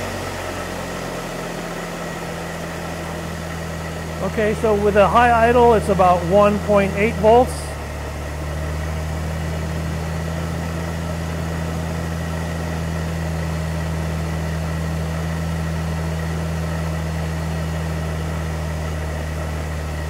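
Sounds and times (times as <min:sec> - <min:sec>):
engine at high idle: 0:00.0 - 0:20.0
faint high whine: 0:03.2 - 0:08.1.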